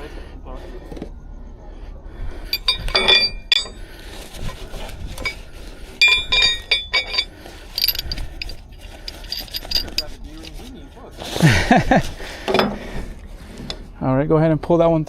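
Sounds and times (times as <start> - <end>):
metal hardware rattling: 2.4 - 10.8
metal hardware clinking: 2.5 - 10.8.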